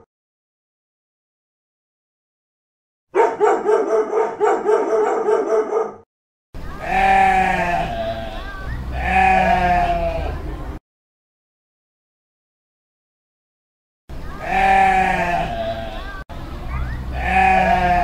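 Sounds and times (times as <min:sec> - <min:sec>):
dog barking rapidly: 0:03.1 - 0:06.0
sheep bleating: 0:06.8 - 0:10.4, 0:14.4 - 0:16.2, 0:17.1 - 0:18.0.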